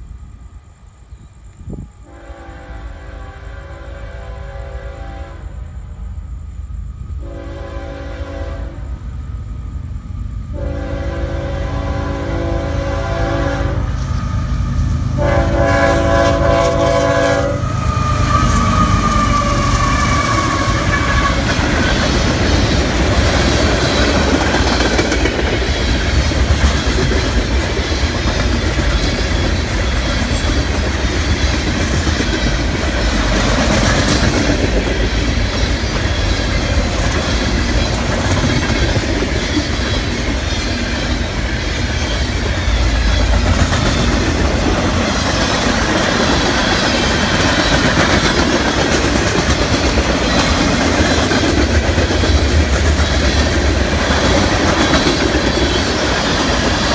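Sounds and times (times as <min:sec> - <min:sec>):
locomotive horn blasts: 0:02.0 - 0:05.7, 0:07.2 - 0:08.9, 0:10.5 - 0:13.9, 0:15.2 - 0:21.4
locomotives rumbling past: 0:10.8 - 0:56.9.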